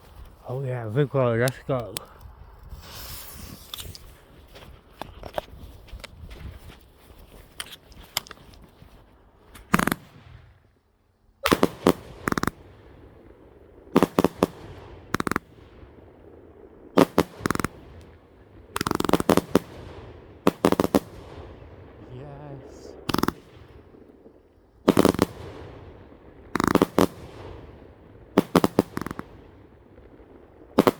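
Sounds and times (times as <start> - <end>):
firework bangs: 9.5 - 10.7, 11.4 - 30.9.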